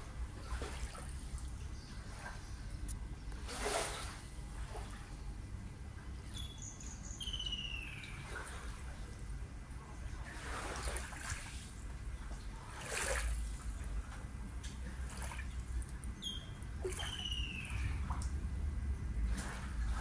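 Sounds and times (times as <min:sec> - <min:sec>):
water lapping and splashing: 0:00.0 - 0:06.5, 0:07.5 - 0:20.0
bird calling: 0:06.3 - 0:08.4, 0:16.2 - 0:18.1.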